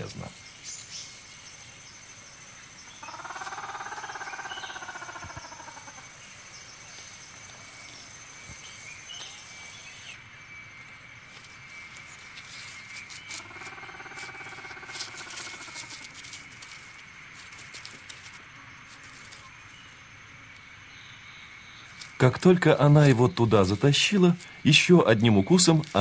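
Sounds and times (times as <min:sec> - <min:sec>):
cricket trilling: 0:00.0 - 0:26.0
scratchy clicking and patter: 0:11.3 - 0:19.6.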